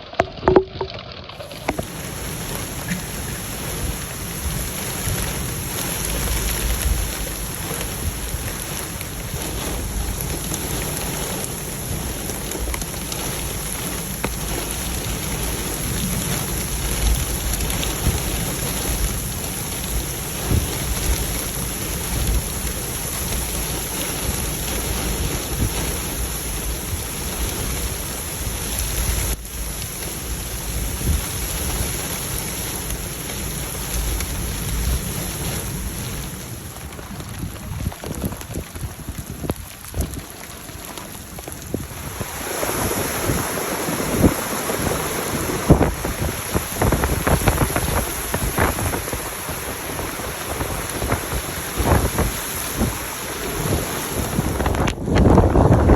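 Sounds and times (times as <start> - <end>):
heavy rain and hail striking: 0.0 - 55.9
thunder rumbling: 0.0 - 55.9.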